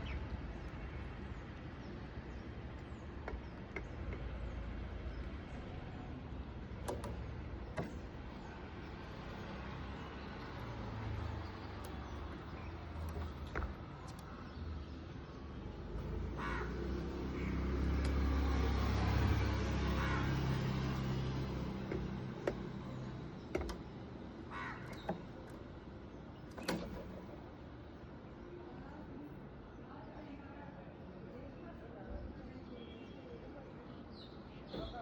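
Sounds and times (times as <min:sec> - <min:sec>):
bird harsh calls: 0:16.3 - 0:17.9, 0:24.4 - 0:25.4.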